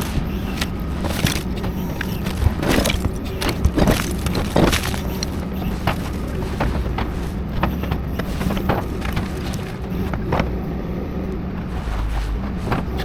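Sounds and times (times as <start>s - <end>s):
demolition debris breaking: 0.0s - 9.9s
excavator diesel engine running: 0.0s - 13.0s.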